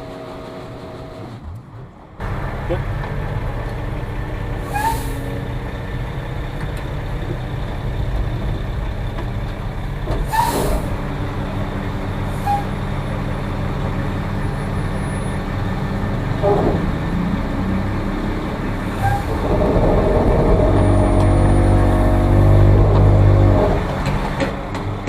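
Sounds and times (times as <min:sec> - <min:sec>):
diesel truck engine running: 0:00.0 - 0:25.0
air hiss bursts: 0:10.3 - 0:10.9.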